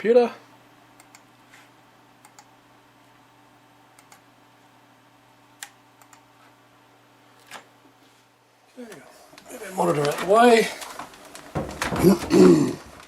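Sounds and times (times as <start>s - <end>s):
computer mouse and keyboard clicks: 1.0s - 1.3s, 2.2s - 2.5s, 4.0s - 4.2s, 5.6s - 6.3s.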